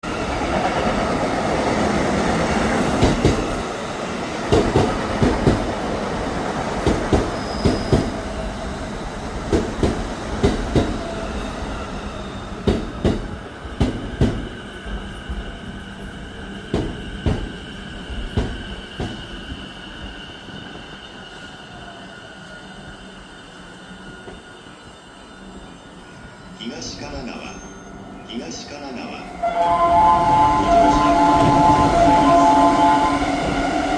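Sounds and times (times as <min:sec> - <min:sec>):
high brake squeal: 0:07.3 - 0:08.2, 0:11.2 - 0:12.7, 0:27.4 - 0:28.2, 0:29.4 - 0:33.8
train running rumble: 0:29.5 - 0:33.9.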